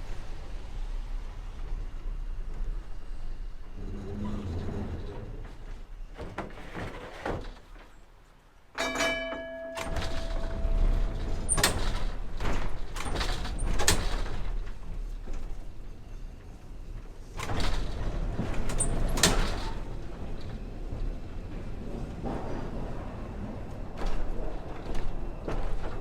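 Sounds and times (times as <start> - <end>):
light rail rumbling: 0.0 - 26.0
clunks over track joints: 8.8 - 26.0.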